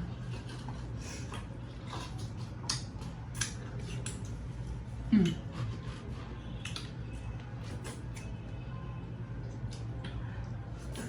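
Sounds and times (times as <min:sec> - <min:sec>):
steady low hum: 0:00.0 - 0:11.0
wet eating smacks: 0:00.4 - 0:04.4.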